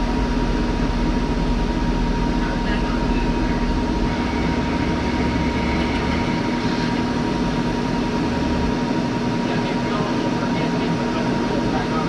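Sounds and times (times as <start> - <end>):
arc welding hiss and hum: 0.0 - 9.6.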